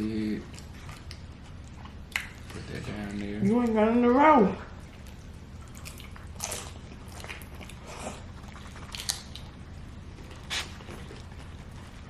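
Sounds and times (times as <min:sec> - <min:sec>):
steady low hum: 0:00.0 - 0:12.0
food crunches and rustles: 0:04.9 - 0:12.0.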